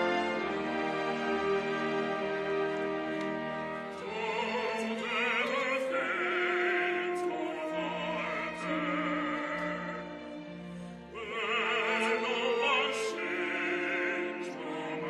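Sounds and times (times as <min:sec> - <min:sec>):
operatic voice singing: 0:04.0 - 0:10.0, 0:11.1 - 0:15.0.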